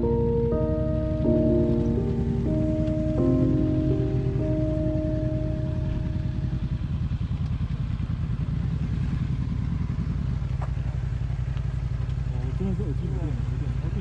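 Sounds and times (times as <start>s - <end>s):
music track: 0.0s - 6.8s
motorcycle engine running: 0.0s - 14.0s.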